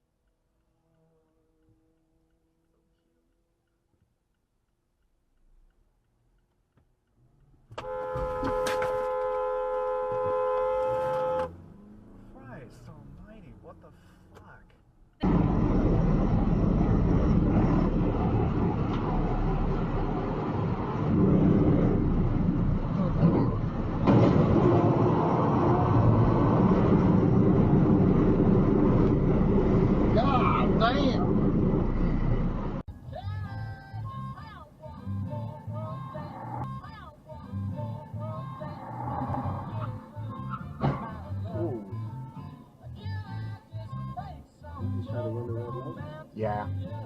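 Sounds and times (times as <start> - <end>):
car driving on road: 0.0 - 42.8
car horn blast: 7.8 - 11.6.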